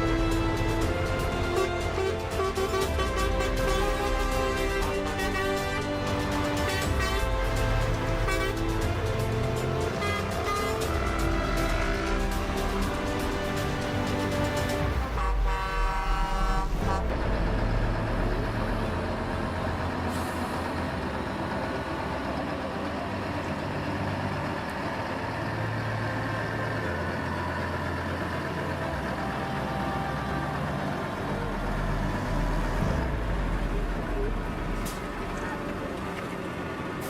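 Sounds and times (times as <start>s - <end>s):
truck horn: 0.0s - 20.9s
heavy truck engine running: 0.0s - 37.0s.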